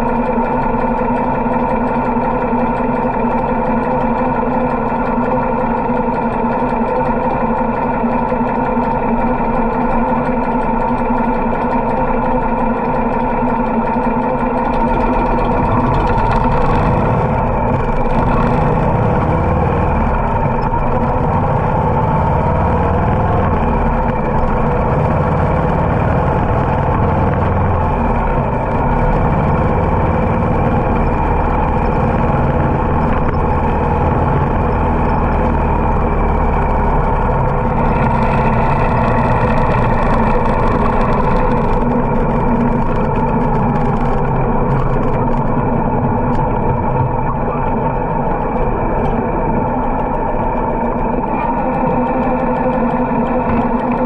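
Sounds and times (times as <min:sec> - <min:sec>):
motorcycle engine running: 0:00.0 - 0:54.0
wind rumble on microphone: 0:14.7 - 0:54.0.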